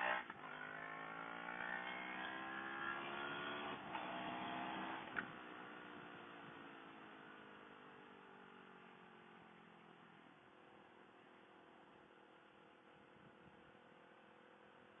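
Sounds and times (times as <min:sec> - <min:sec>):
motorcycle engine accelerating: 0:00.0 - 0:10.1.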